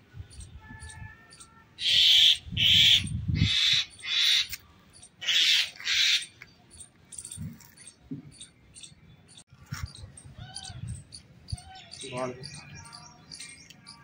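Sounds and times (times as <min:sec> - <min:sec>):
bird distress screeches: 0:00.7 - 0:06.4, 0:09.8 - 0:12.6.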